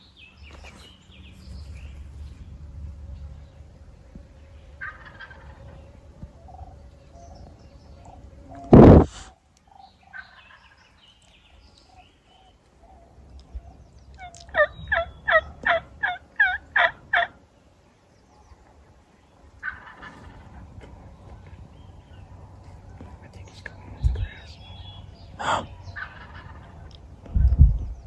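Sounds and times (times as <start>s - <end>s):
turkey yelps: 4.8s - 5.5s, 14.2s - 17.3s, 19.6s - 20.4s, 25.4s - 26.7s.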